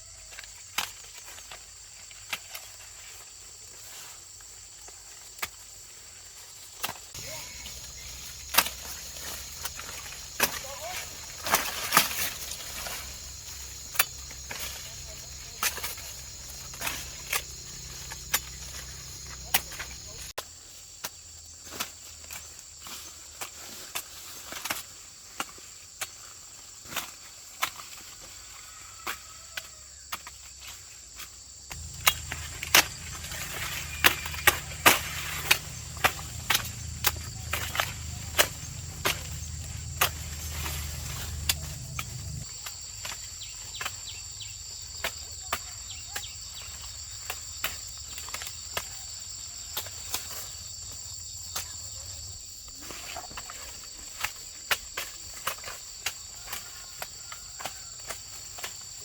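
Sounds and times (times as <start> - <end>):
insects trilling: 0.0 - 59.0
sharp snaps and cracks: 31.7 - 44.2.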